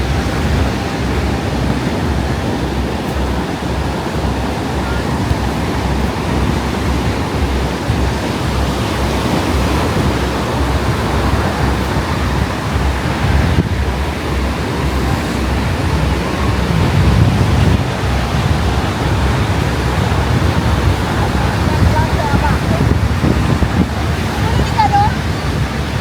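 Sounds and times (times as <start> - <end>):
ocean surf breaking: 0.0 - 26.0
wind buffeting microphone: 0.0 - 26.0.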